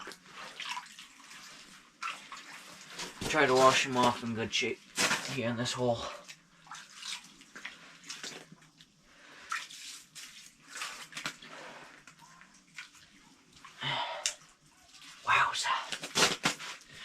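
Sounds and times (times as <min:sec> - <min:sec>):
water sloshing and splashing: 0:00.0 - 0:13.8.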